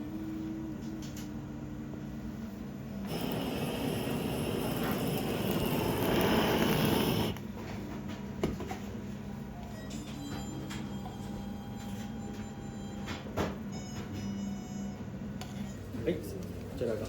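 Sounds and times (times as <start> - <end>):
gas torch flame hissing: 3.0 - 7.4.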